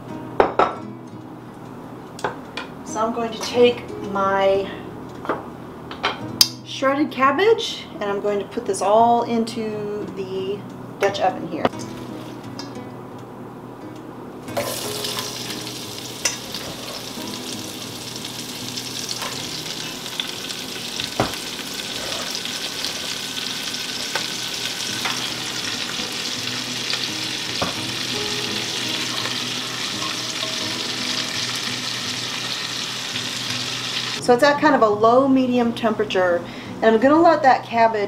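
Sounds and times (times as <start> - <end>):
cabbage sizzling in hot fat: 14.5 - 34.2.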